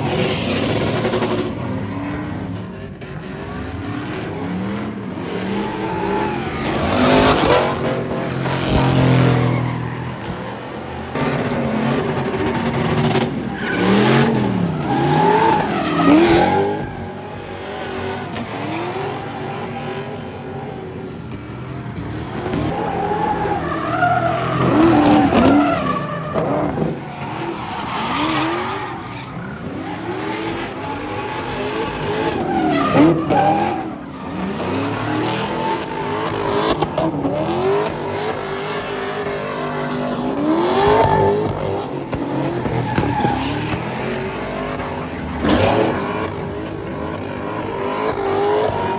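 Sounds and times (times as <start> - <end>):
truck engine revving: 0.0 - 48.9
tyres squealing: 22.6 - 46.4.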